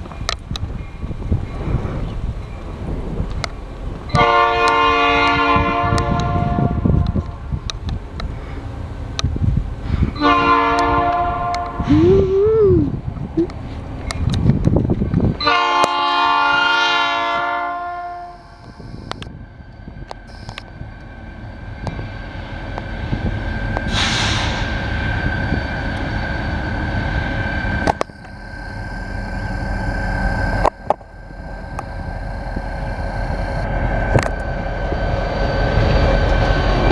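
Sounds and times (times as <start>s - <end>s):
locomotive air horn: 4.1s - 7.2s, 10.2s - 11.9s, 15.4s - 18.6s
steady high tone: 17.8s - 36.9s
train wheels clicking over rails: 19.1s - 36.9s
short hiss: 23.9s - 24.8s.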